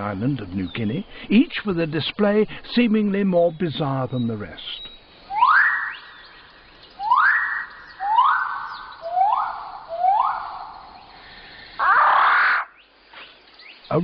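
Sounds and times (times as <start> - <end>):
bird whistling: 4.7 - 11.1.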